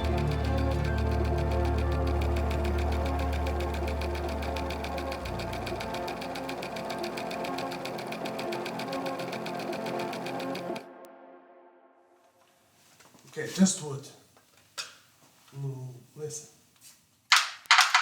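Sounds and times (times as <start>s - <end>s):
textile machine clattering: 0.0s - 10.8s
low hum: 0.0s - 12.1s.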